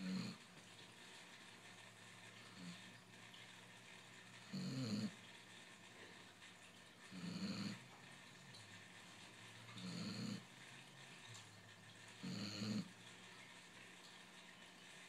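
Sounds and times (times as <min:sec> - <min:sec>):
dog snoring: 0:00.0 - 0:00.5, 0:02.4 - 0:02.9, 0:04.4 - 0:05.2, 0:07.1 - 0:08.0, 0:09.6 - 0:10.5, 0:12.2 - 0:13.0.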